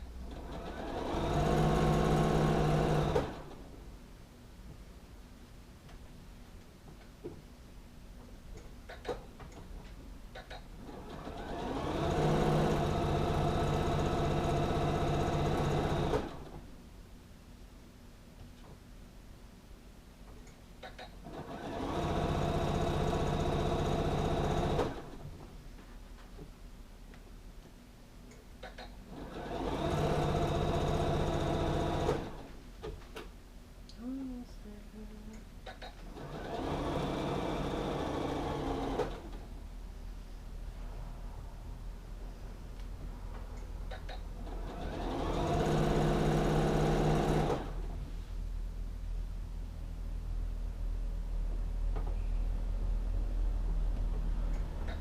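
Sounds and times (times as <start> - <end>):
sewing machine motor running: 0.3 - 3.5, 10.9 - 16.4, 21.3 - 25.2, 29.1 - 32.5, 36.1 - 39.3, 44.4 - 47.9.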